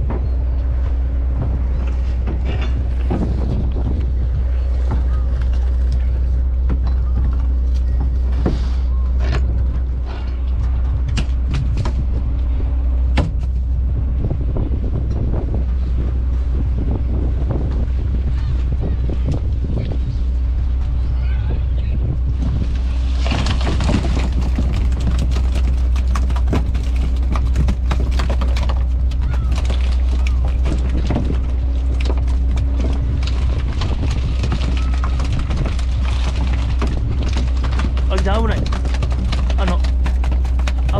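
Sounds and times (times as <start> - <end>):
knocks and clatters: 0.0 - 8.6, 22.4 - 40.9
boat engine droning: 0.0 - 40.9.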